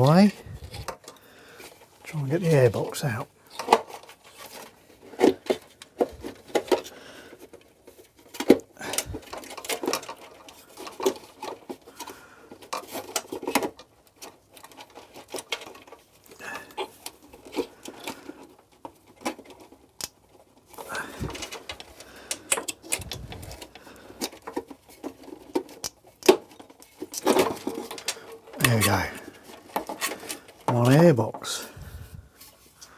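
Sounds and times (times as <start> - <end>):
plastic rubbing scrapes: 22.8 - 32.9.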